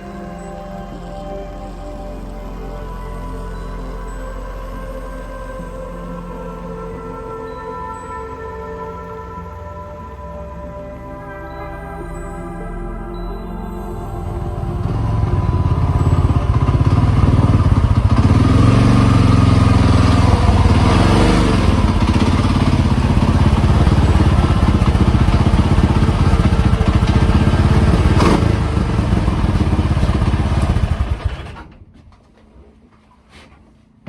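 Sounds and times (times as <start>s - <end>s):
motorcycle engine running: 14.5s - 31.8s.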